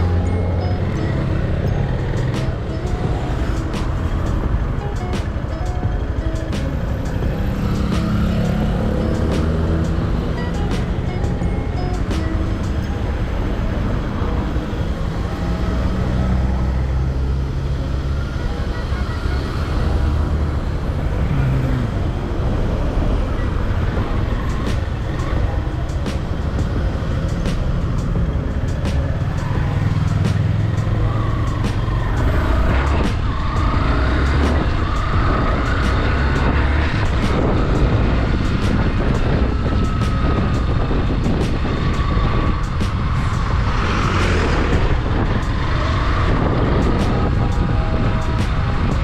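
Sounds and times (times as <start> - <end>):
vehicles passing: 0.0 - 49.0
wind on microphone: 19.6 - 49.0.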